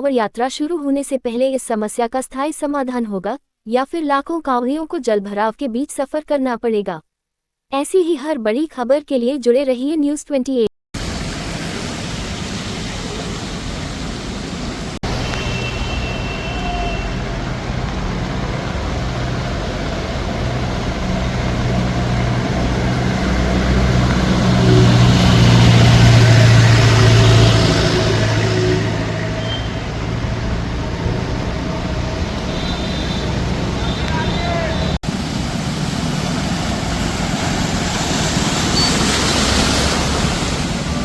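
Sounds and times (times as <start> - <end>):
road traffic: 11.0 - 41.0
vehicle engine passing: 11.0 - 41.0.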